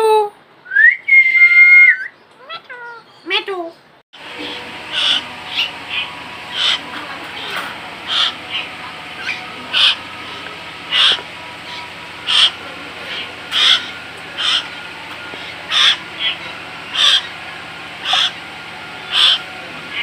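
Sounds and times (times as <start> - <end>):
bird calling: 4.2 - 20.0.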